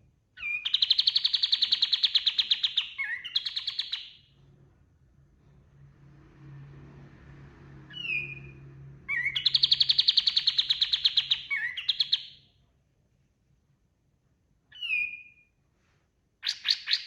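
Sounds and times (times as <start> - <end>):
bird singing fast trill: 0.4 - 4.3, 9.1 - 12.4, 16.4 - 17.0.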